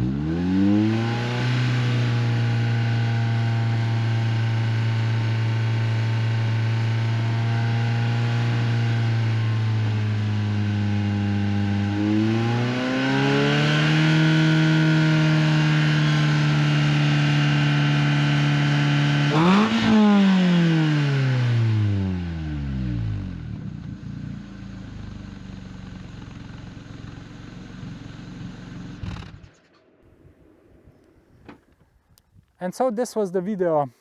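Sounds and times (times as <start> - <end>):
car engine revving: 0.0 - 25.8.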